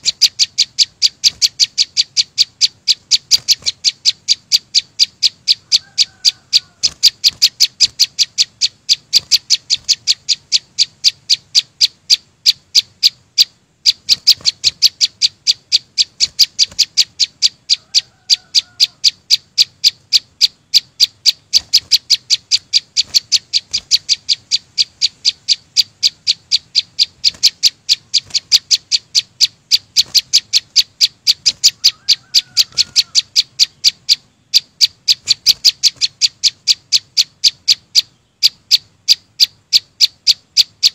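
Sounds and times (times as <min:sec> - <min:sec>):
bird chirping low: 0:00.0 - 0:40.9.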